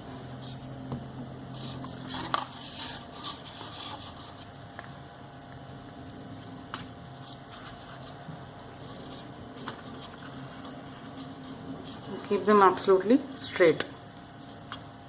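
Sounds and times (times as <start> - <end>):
steady low hum: 0.0 - 15.0
paper rustling: 6.4 - 12.3.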